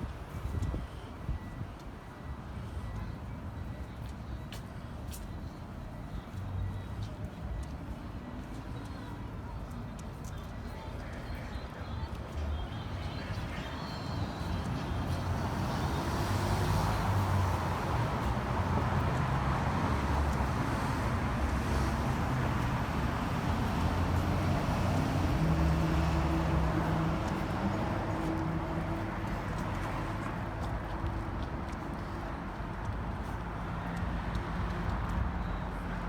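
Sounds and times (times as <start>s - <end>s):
cars passing: 12.4s - 36.0s.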